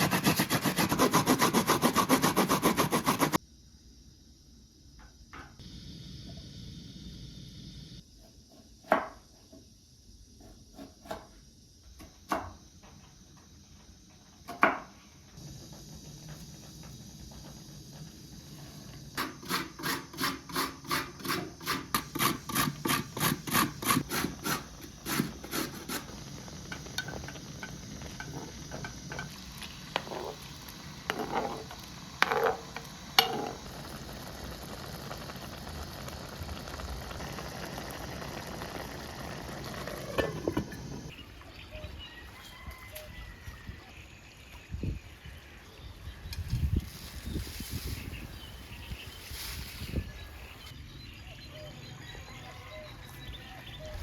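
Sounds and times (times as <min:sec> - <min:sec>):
rhythmic scraping strokes: 0:00.0 - 0:03.4
steady hiss: 0:24.0 - 0:41.2.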